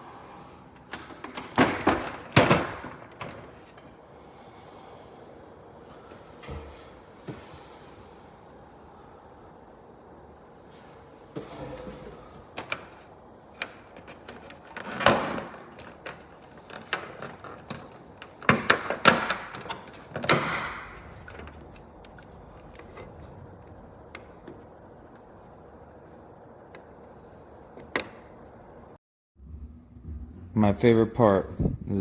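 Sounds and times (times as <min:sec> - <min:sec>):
handling clicks and knocks: 0:13.6 - 0:23.1.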